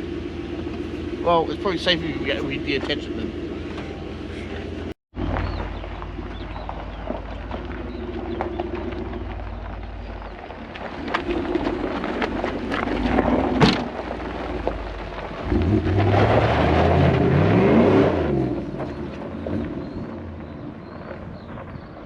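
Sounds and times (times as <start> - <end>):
engine revving: 0.0 - 20.6.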